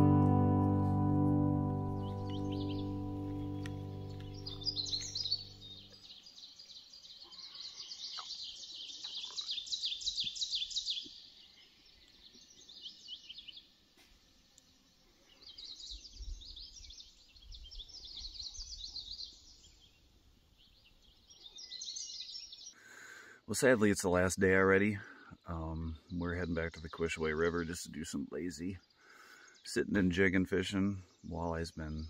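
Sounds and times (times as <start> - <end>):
songbird twittering: 1.8 - 13.8, 14.5 - 22.8.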